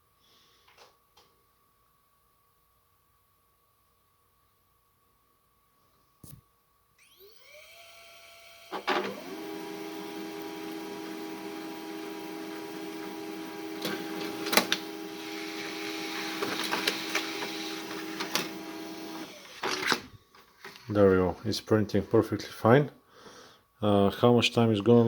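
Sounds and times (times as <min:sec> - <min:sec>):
printer motors whining: 0:07.0 - 0:20.1
printer click: 0:08.7 - 0:20.1
printer clunk: 0:08.7 - 0:20.1
printer feeding clicks: 0:08.7 - 0:20.1.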